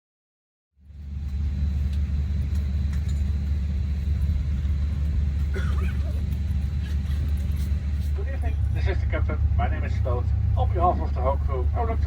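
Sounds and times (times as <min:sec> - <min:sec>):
cabin ventilation drone: 0:00.8 - 0:12.0
faint passenger voices: 0:03.0 - 0:12.0.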